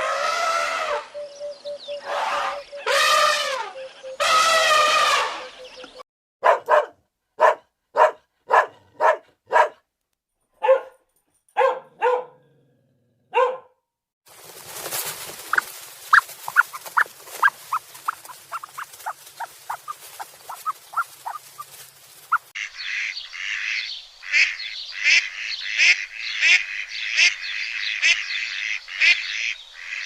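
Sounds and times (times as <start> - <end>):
dog barking: 6.4 - 9.9, 10.6 - 12.6, 13.3 - 13.8.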